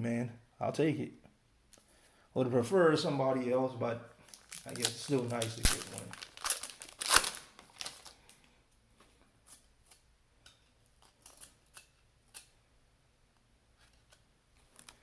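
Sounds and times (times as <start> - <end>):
foil wrapper crinkling: 4.2 - 8.6, 11.0 - 12.5.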